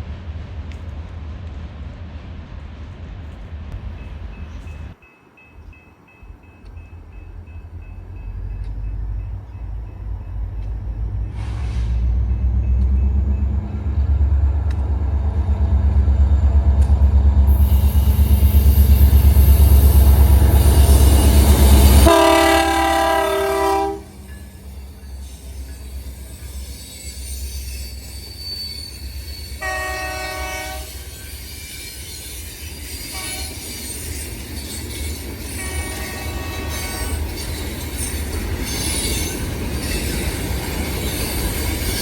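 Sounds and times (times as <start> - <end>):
locomotive engine rumble: 0.0 - 31.6
train air horn blast: 11.3 - 12.2, 17.5 - 24.2, 29.6 - 31.0, 33.1 - 33.6, 35.6 - 37.1.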